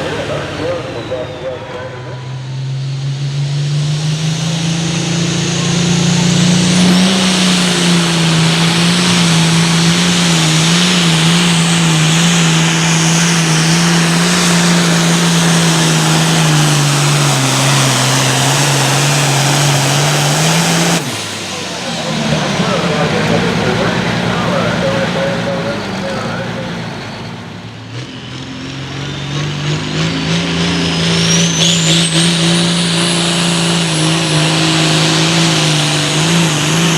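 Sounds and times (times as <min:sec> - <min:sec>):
diesel tractor engine roaring: 0:00.0 - 0:36.9.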